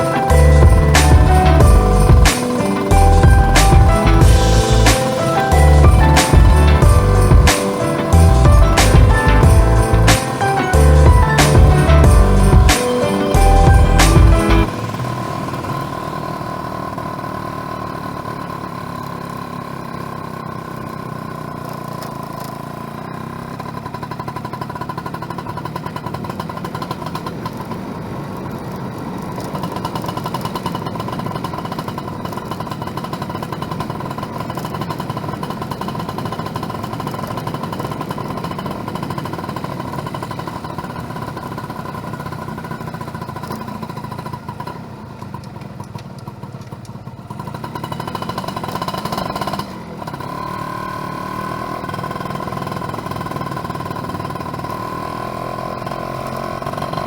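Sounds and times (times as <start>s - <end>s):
steady high tone: 0.0s - 16.9s
two-stroke motorcycle engine: 0.0s - 57.0s.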